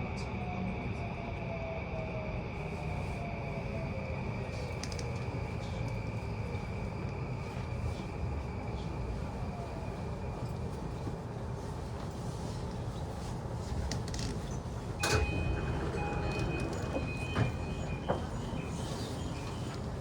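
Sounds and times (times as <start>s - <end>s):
train rumble: 0.0s - 20.0s
door chime tones: 15.0s - 19.7s.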